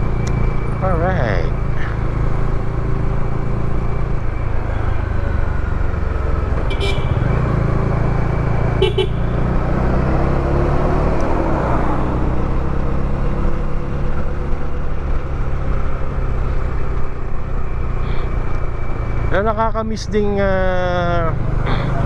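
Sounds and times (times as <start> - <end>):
motorcycle engine running: 0.7 - 9.7.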